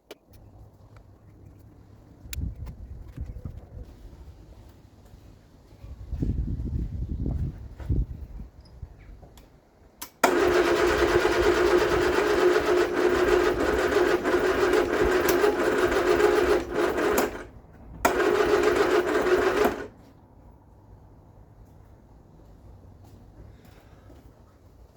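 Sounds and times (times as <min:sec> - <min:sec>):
starter motor cranking engine: 0:10.1 - 0:19.9.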